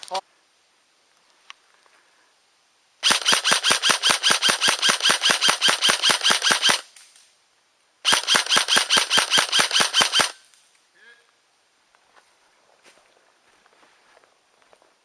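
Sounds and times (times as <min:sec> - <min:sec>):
airsoft gun rapid fire: 0:03.0 - 0:06.9, 0:08.0 - 0:10.4.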